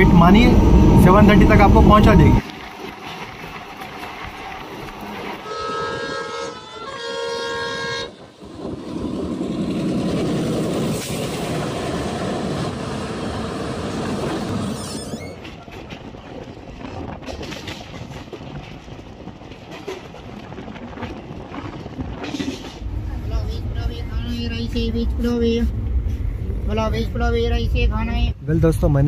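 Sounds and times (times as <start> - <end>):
wheels rattling over rails: 0.0 - 27.8
freight train rumbling past: 0.0 - 29.0
locomotive horn blasts: 5.4 - 8.2.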